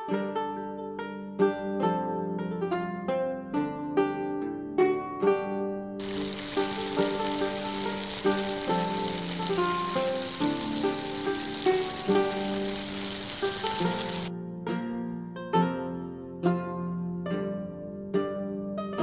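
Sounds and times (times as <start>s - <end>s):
plucked-string background music: 0.0s - 19.0s
hot oil sizzling: 6.0s - 14.3s.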